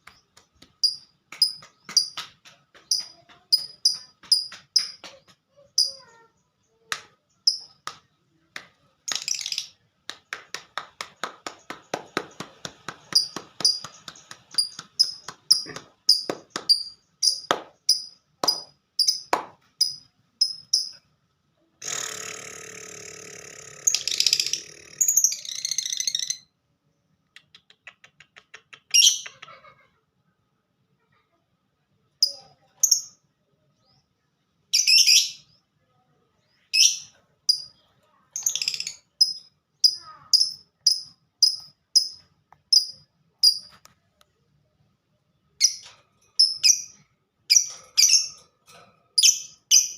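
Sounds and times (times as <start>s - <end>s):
bird clicking and chirping: 0.0s - 6.1s, 9.1s - 9.8s, 11.4s - 21.0s, 27.2s - 29.4s, 38.4s - 43.8s
bird buzzing chatter: 13.1s - 21.0s, 21.8s - 26.4s.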